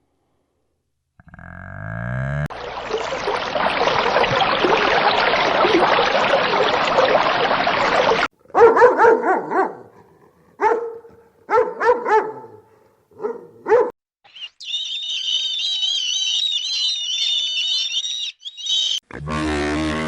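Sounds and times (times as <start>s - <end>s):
dog barking: 8.5s - 14.0s.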